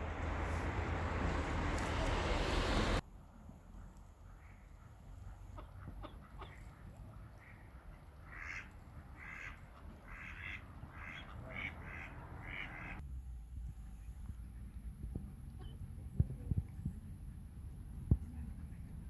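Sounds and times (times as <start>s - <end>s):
ducks quacking: 7.4s - 13.0s.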